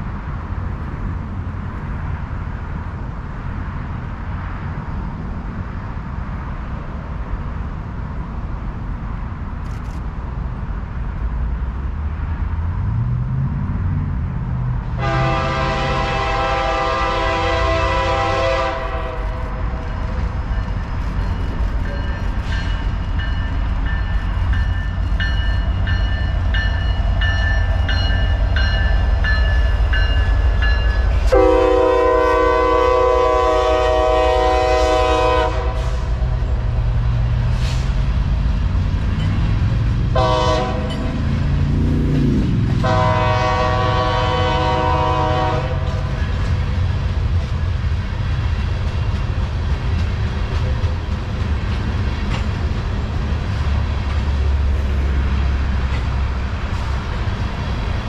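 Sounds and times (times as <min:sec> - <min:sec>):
diesel locomotive rumble: 0:00.0 - 0:58.0
train wheels rumbling on rail: 0:00.0 - 0:58.0
train air horn blasts: 0:15.0 - 0:19.8, 0:31.2 - 0:36.3, 0:40.1 - 0:41.2, 0:42.8 - 0:46.3.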